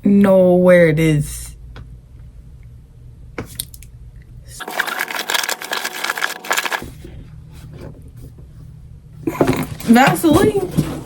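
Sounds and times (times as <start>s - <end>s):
small items rattling and scraping: 4.6s - 7.0s.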